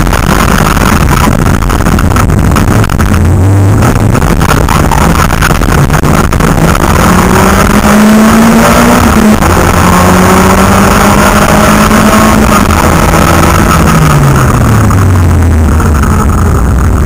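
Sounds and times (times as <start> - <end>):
rally car engine at high revs: 0.0 - 17.0.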